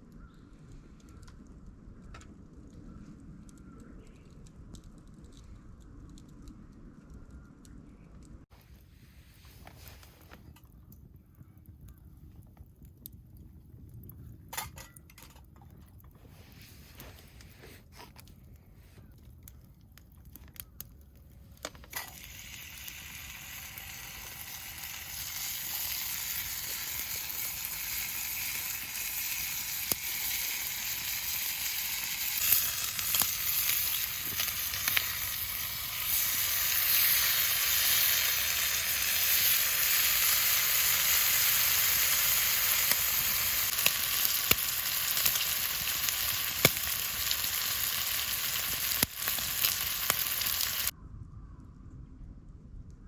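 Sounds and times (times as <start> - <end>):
small pops of frying: 10.2 - 16.0, 19.0 - 51.0
food sizzling in a pan: 22.0 - 50.9.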